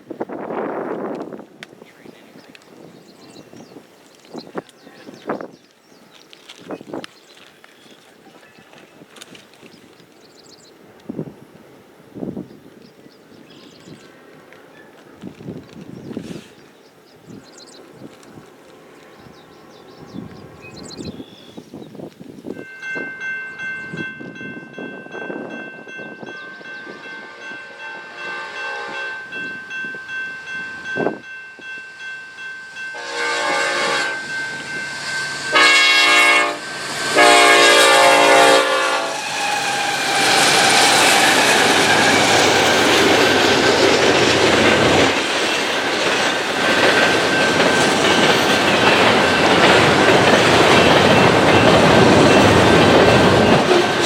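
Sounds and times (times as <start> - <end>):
locomotive horn blasts: 26.6 - 29.5, 32.8 - 40.5
train wheels clicking over rail joints: 39.2 - 54.0.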